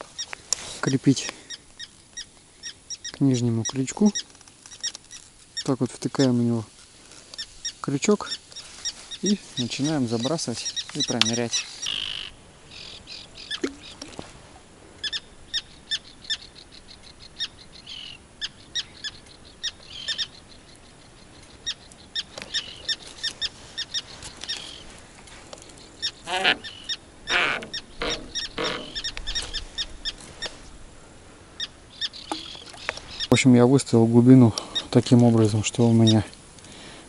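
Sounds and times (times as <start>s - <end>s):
bird calling in sharp notes: 26.0s - 30.2s, 31.6s - 33.4s.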